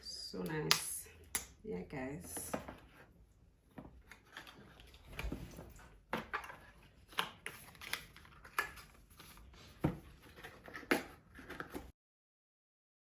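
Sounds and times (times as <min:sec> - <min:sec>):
objects handled clicking and rustling: 0:03.7 - 0:11.9.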